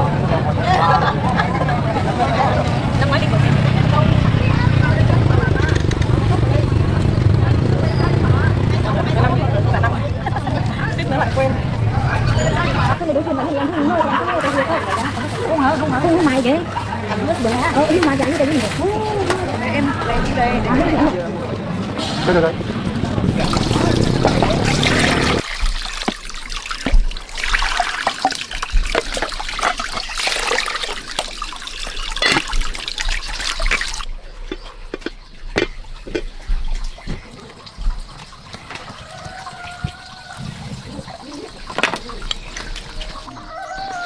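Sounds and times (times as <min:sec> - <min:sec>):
water splashing and pouring: 0:23.3 - 0:34.6, 0:35.8 - 0:44.0
water trickling: 0:23.3 - 0:44.0.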